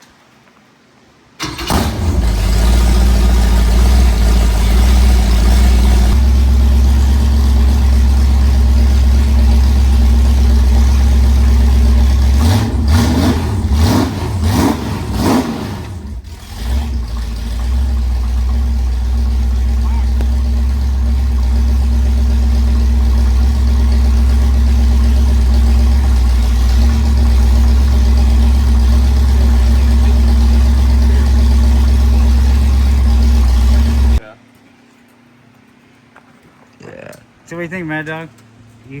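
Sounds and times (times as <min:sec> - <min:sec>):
boat engine idling and revving: 0:01.7 - 0:34.2.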